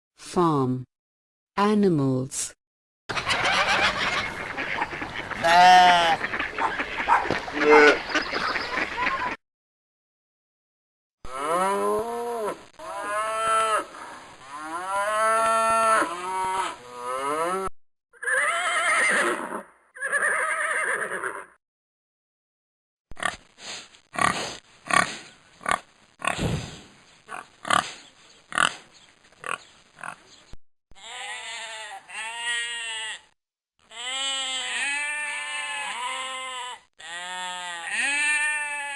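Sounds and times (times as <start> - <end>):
farm animal calls: 3.1 - 9.4, 27.3 - 28.8, 29.4 - 30.3.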